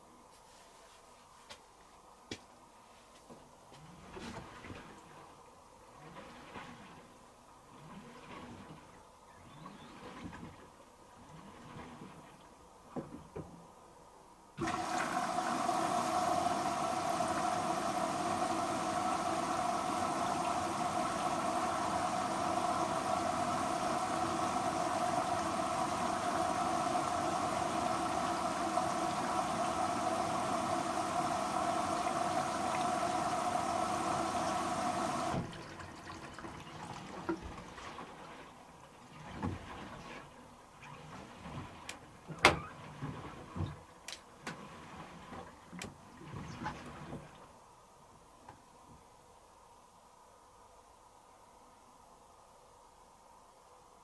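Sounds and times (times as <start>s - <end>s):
washing machine water rushing in: 3.7s - 12.6s, 14.6s - 47.7s.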